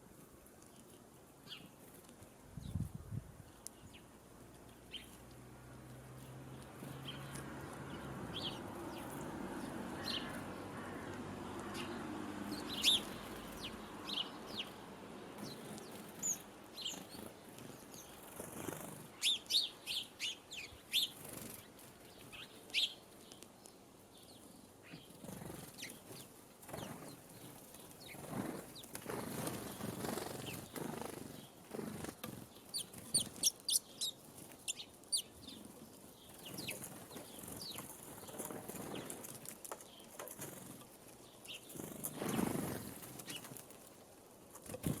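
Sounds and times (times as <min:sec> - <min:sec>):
sparrows chirping: 0:00.6 - 0:44.1
wing flutters: 0:15.4 - 0:19.6, 0:25.1 - 0:34.7, 0:36.3 - 0:43.9.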